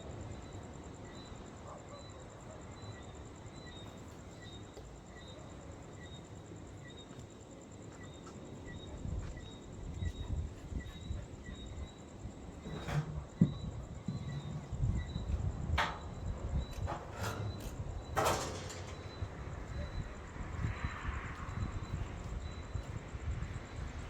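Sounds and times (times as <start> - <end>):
insect chirp: 0.0 - 24.0
wind rumble on microphone: 8.8 - 24.0.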